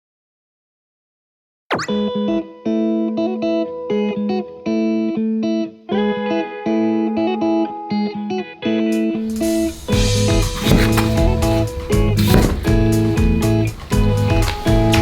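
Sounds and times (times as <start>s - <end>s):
guitar chords: 1.9s - 15.0s.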